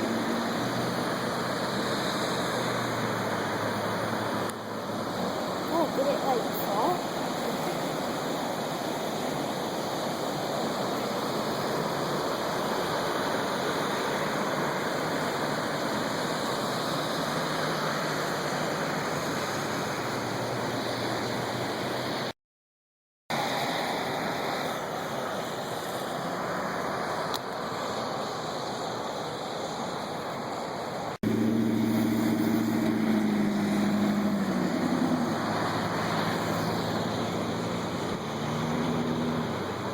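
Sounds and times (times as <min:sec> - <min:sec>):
floodwater rushing: 0:00.0 - 0:22.3, 0:23.3 - 0:39.9.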